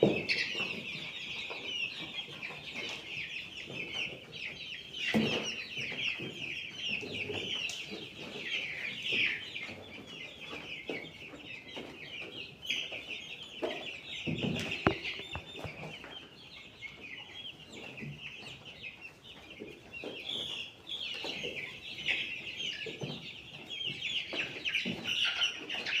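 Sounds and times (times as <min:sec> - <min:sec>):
chickens calling: 0:00.0 - 0:26.0
knocks: 0:14.7 - 0:15.9.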